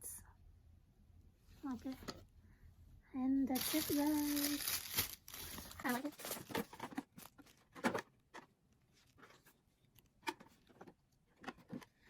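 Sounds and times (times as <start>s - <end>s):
faint rustles and clicks of handling: 1.4s - 2.3s, 3.5s - 12.0s.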